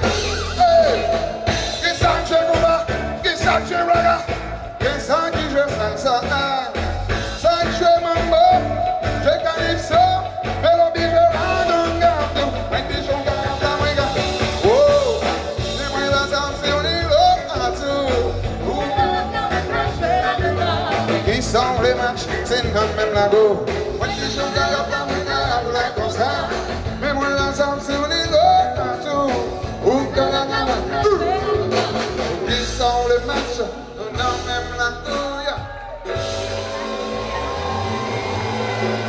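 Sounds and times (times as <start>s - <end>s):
steady bass beat: 0.0s - 28.6s
live band music: 0.0s - 39.0s
person singing: 0.0s - 39.0s.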